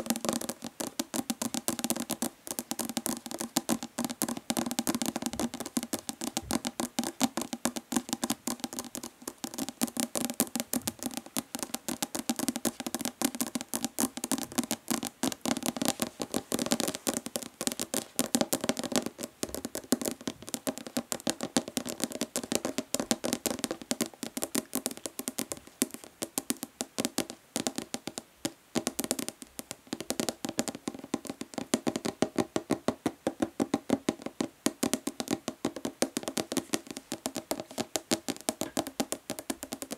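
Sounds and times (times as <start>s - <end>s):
fingernails tapping plastic bottle: 28.8s - 39.9s.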